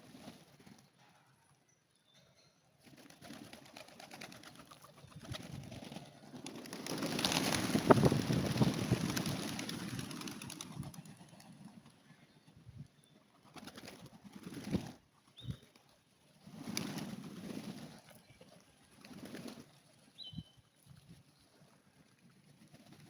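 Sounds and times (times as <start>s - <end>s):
wing flaps: 2.9s - 11.7s, 13.5s - 15.0s, 16.5s - 18.1s.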